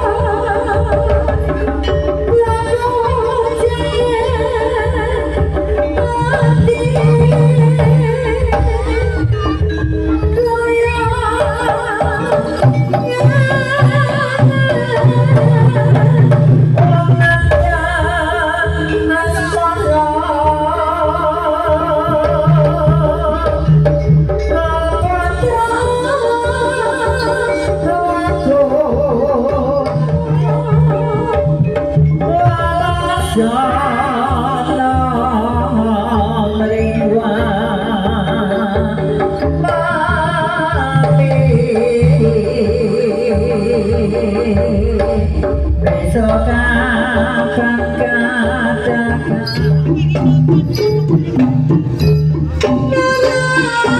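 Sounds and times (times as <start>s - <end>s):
repeating ensemble melody: 0.0s - 20.4s, 22.2s - 41.2s, 45.3s - 53.9s
person singing: 0.0s - 51.7s, 52.6s - 53.9s
hand drum strokes: 21.7s - 53.9s
steady drum beat: 43.4s - 53.9s.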